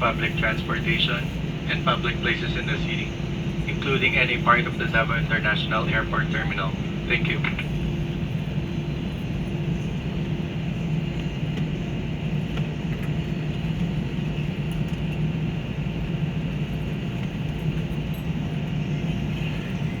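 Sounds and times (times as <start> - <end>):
airliner cabin drone: 0.0 - 20.0.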